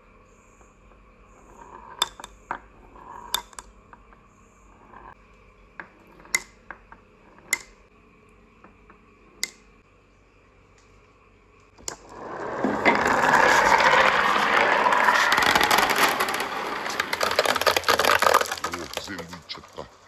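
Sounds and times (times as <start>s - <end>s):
marbles rolling: 1.4s - 4.1s, 11.8s - 20.0s
glass marbles clacking: 1.5s - 3.7s, 12.0s - 19.8s.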